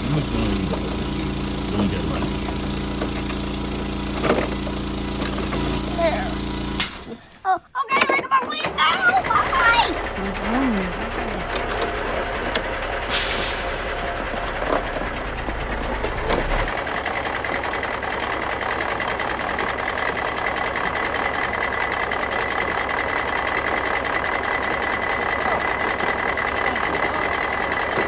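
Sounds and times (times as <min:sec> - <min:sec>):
garbage truck engine running: 0:00.0 - 0:28.0
brief air hiss: 0:13.1 - 0:14.0.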